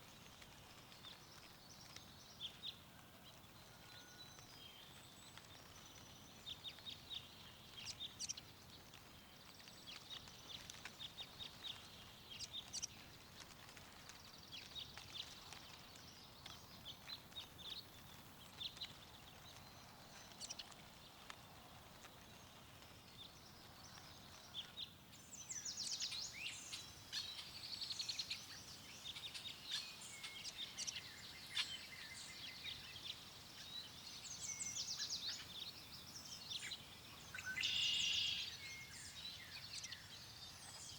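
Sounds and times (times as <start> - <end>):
faint steady wind: 0.0 - 40.9
songbirds chirping and trilling: 0.0 - 40.9.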